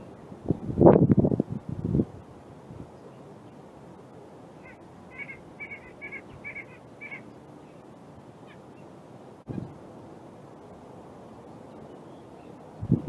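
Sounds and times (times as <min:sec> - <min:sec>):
outdoor background: 0:00.0 - 0:13.0
bird calling: 0:04.6 - 0:09.8.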